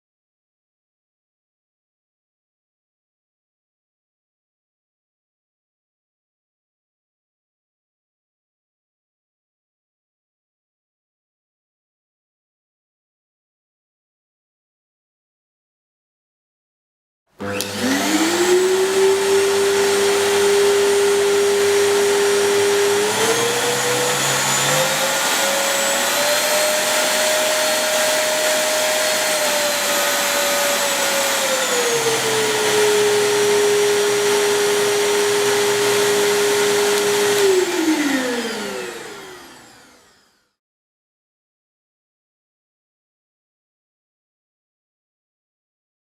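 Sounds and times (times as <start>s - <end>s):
vacuum cleaner motor whining: 17.4s - 40.6s.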